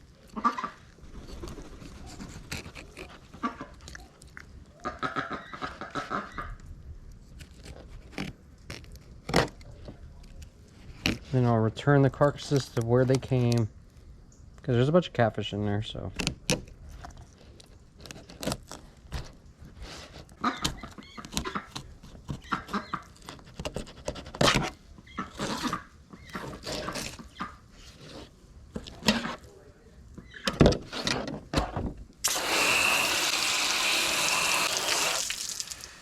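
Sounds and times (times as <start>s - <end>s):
tap water running: 32.2s - 36.0s.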